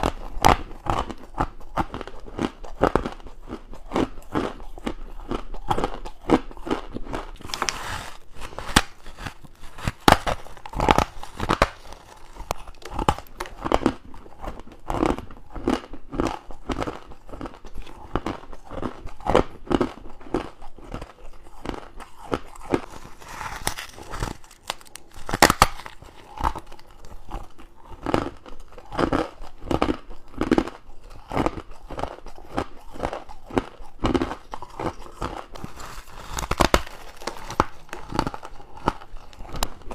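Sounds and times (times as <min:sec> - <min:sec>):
crunching bites into ice: 0:03.8 - 0:16.8, 0:19.2 - 0:27.2, 0:32.8 - 0:39.8.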